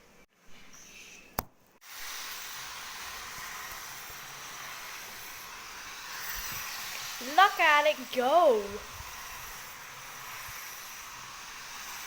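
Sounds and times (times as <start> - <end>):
toy train motor whirring: 1.8 - 12.0.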